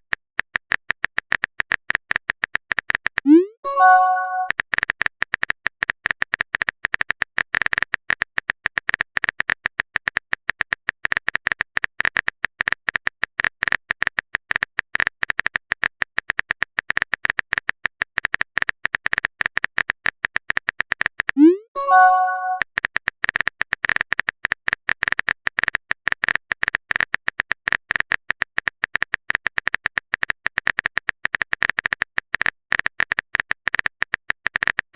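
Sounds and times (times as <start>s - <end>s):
phone keyboard typing clicks: 0.2s - 4.6s, 12.9s - 24.4s.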